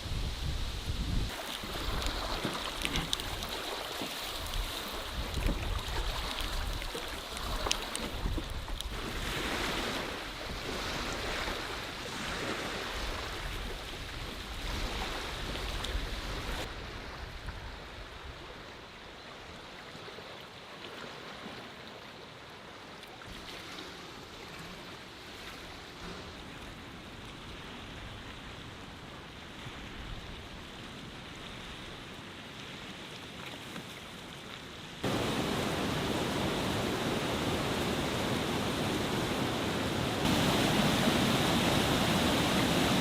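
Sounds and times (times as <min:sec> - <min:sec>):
water washing around a canoe: 0:00.0 - 0:43.0
sharp water splashes: 0:01.3 - 0:10.2, 0:35.0 - 0:43.0
steady hiss: 0:35.0 - 0:43.0.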